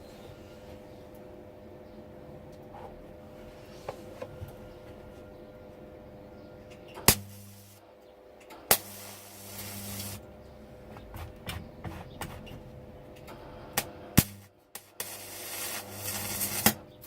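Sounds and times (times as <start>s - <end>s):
welder buzzing and hissing: 7.1s - 7.8s, 8.7s - 10.2s, 13.7s - 16.8s
welding arc crack: 7.1s - 7.8s, 8.7s - 10.2s, 13.8s - 16.8s.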